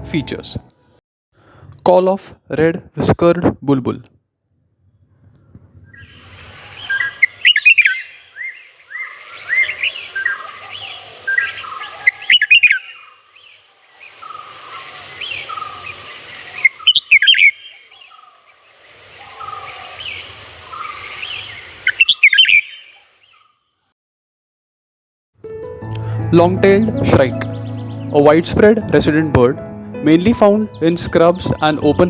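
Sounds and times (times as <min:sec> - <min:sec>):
bird calling with bubbling notes: 0:05.9 - 0:18.4, 0:19.2 - 0:23.5
soft bird chirps: 0:05.9 - 0:23.7
steady high hiss: 0:06.0 - 0:07.5, 0:12.9 - 0:16.8, 0:17.6 - 0:22.0.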